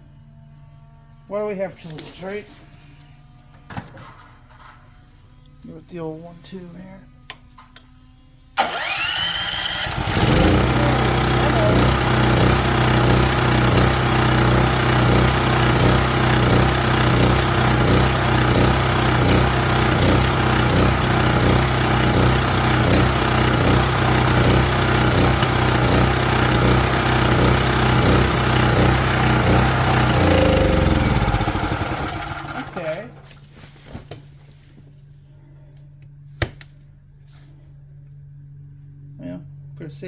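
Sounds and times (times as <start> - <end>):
portable generator engine running: 8.6 - 33.3.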